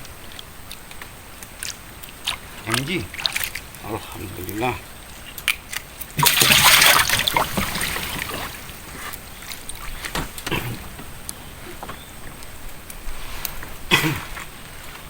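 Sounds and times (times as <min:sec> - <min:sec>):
water trickling: 0:01.5 - 0:09.8
water splashing: 0:01.5 - 0:10.6.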